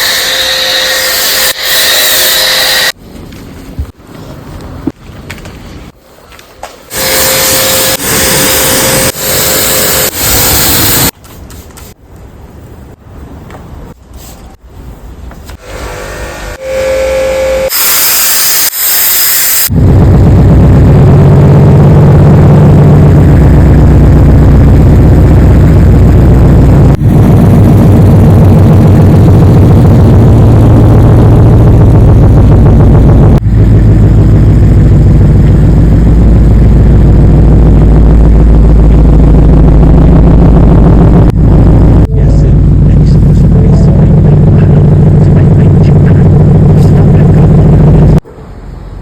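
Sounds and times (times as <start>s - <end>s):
car engine running loudly: 19.7s - 48.2s.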